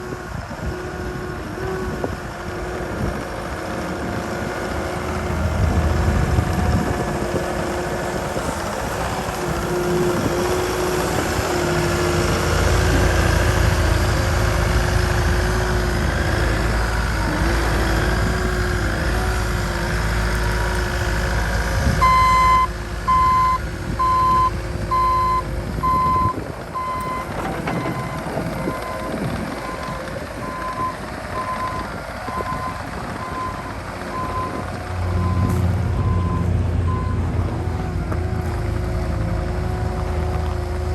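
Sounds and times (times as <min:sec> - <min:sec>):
diesel engine running: 0:00.0 - 0:40.9
reversing alarm beeping: 0:22.0 - 0:37.3.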